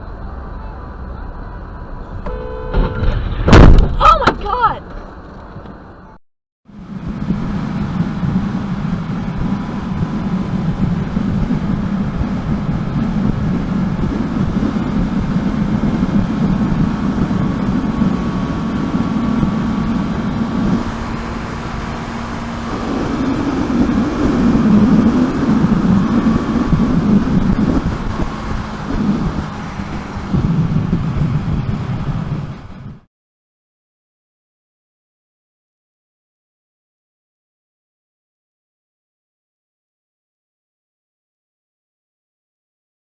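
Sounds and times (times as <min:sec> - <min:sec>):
car road and engine noise: 0:00.0 - 0:33.1.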